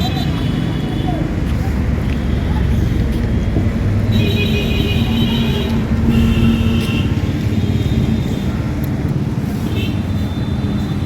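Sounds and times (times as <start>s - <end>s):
motor vehicle rumbling: 0.0s - 11.0s.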